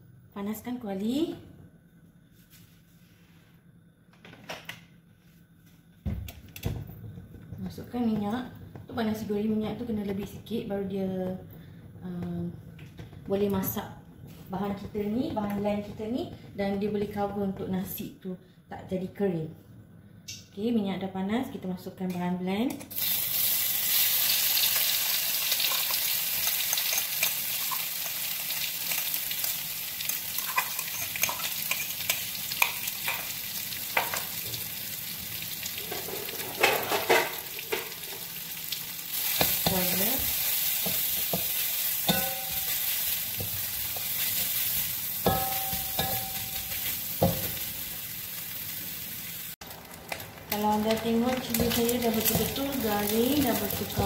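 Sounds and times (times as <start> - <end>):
paste sizzling in hot oil: 22.9 - 36.5, 37.4 - 50.7.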